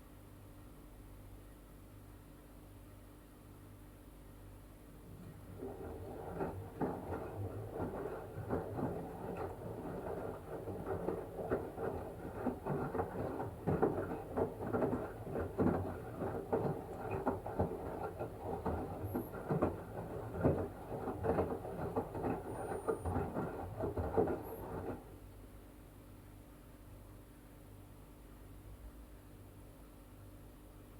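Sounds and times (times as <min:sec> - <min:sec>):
low motor hum: 0:04.9 - 0:25.2
washing machine drum tumbling: 0:04.9 - 0:25.2
water sloshing: 0:05.0 - 0:25.1.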